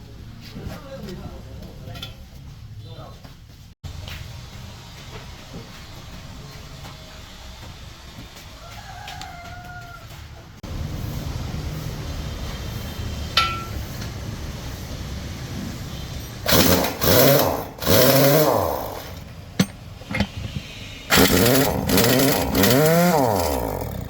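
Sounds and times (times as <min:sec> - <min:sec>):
pneumatic impact wrench bursts: 0:16.2 - 0:24.0.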